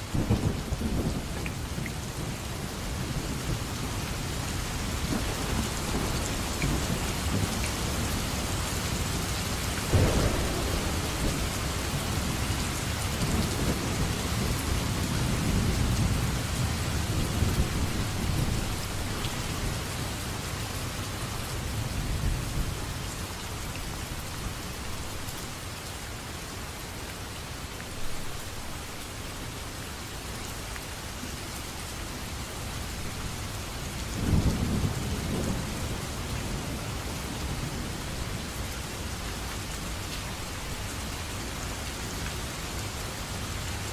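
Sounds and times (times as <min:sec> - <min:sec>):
steady rain: 0:00.0 - 0:43.9
low rolls of thunder: 0:00.1 - 0:09.1, 0:09.8 - 0:20.2, 0:33.9 - 0:39.2.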